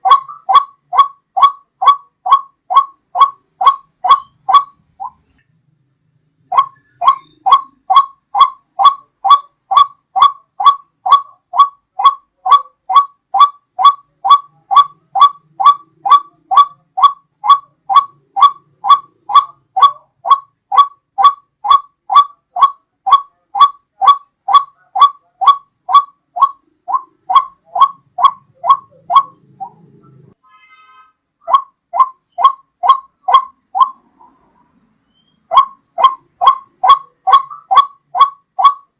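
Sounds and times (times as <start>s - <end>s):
waterhen calling: 0.0s - 5.4s, 6.5s - 30.3s, 31.4s - 38.9s.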